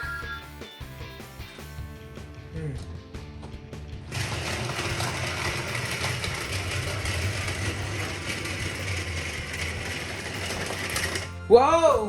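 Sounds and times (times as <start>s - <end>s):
toy train motor whirring: 4.1s - 11.4s.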